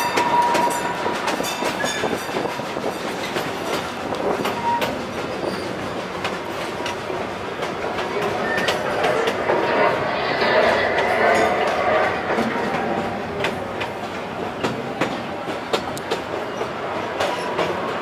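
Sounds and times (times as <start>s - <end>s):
wheels clicking over rail joints: 0.0s - 9.8s
train rumbling on track: 0.0s - 18.0s.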